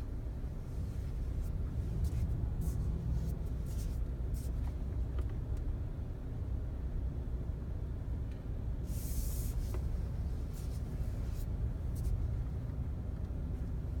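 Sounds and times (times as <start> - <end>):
road rumble inside car: 0.0 - 14.0.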